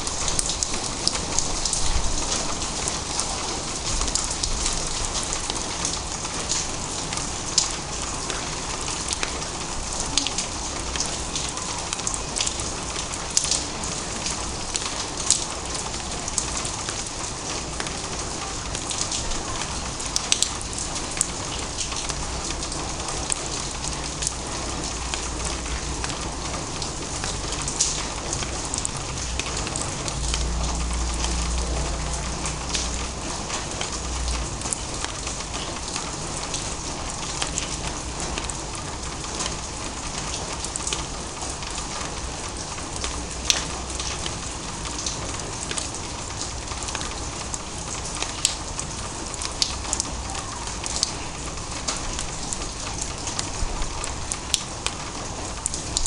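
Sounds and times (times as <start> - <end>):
light rain patter: 0.0 - 56.0
sharp raindrop ticks: 0.0 - 56.0
low rumble: 29.3 - 34.6.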